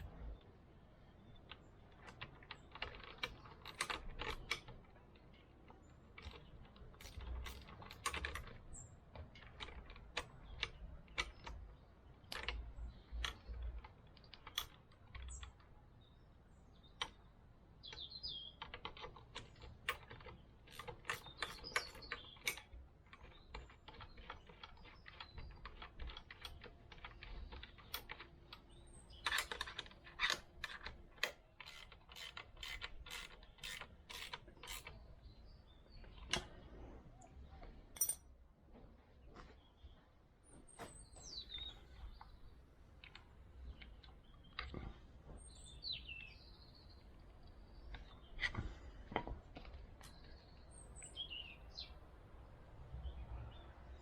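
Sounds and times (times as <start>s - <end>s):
metallic clicks and clatter: 1.2s - 15.9s, 17.9s - 36.8s.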